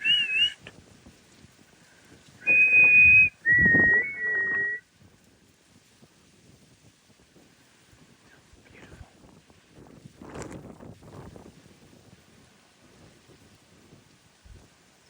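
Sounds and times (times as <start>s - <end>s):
person whistling: 0.0s - 0.6s, 2.4s - 4.8s.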